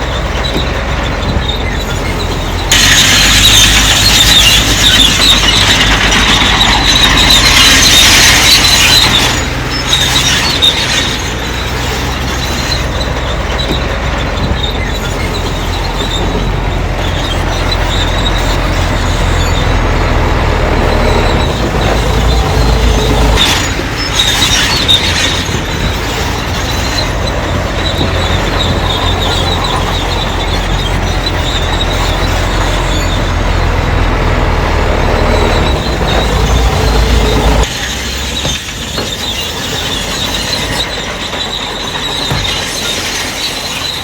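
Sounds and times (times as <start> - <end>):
diesel engine under load: 0.0 - 44.0
steel tracks squealing and clanking: 0.0 - 44.0.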